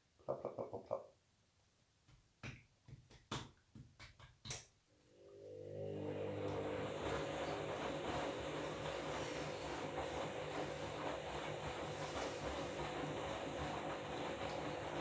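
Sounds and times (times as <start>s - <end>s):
washing machine motor hum: 5.1s - 15.0s.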